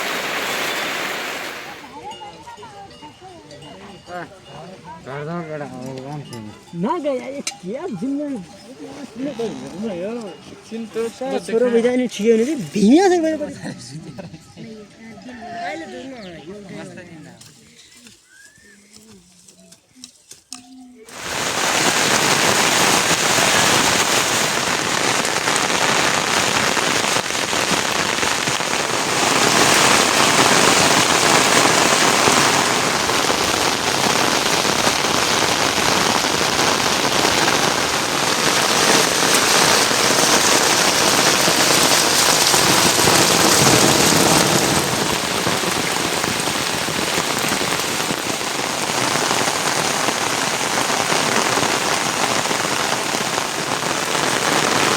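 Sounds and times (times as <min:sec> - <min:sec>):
heavy rain on surfaces: 0:00.0 - 0:01.9, 0:21.1 - 0:54.9.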